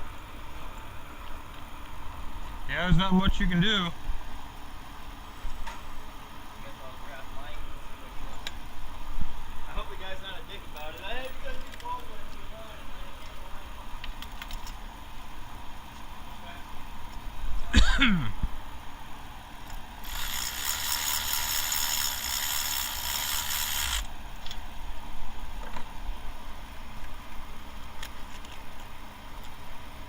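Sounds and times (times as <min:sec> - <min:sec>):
ratchet rattling: 0:20.0 - 0:24.1
tool scraping metal: 0:20.0 - 0:24.1.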